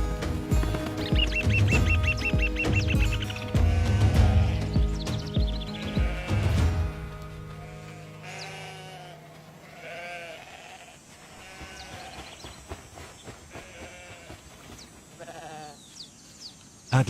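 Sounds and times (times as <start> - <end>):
high bird chirps: 1.0 - 3.6
sheep bleating: 3.5 - 5.0, 5.6 - 6.9, 7.5 - 12.2, 13.5 - 14.4, 15.2 - 15.8.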